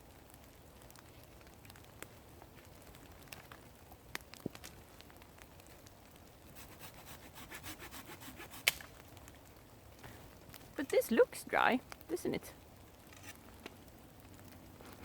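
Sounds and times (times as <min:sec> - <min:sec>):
hand saw cutting branch: 0:06.6 - 0:08.8
branch cracking: 0:08.6 - 0:09.5.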